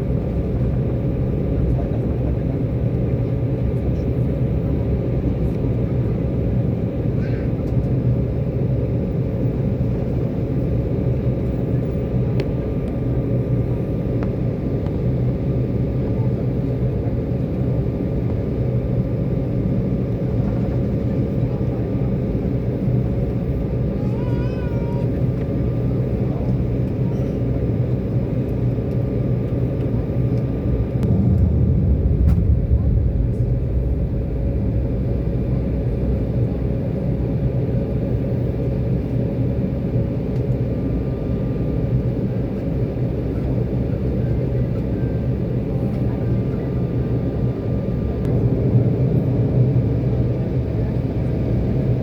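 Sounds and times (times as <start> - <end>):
airliner engine and airflow drone: 0.0 - 52.0
faint steady whine: 30.6 - 37.5.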